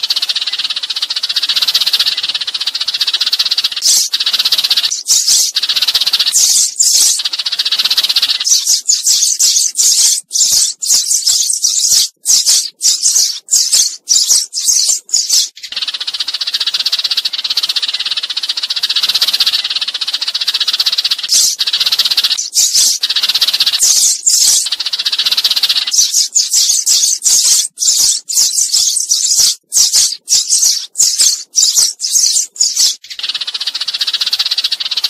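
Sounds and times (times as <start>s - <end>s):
sparrows chirping: 0.0s - 35.0s.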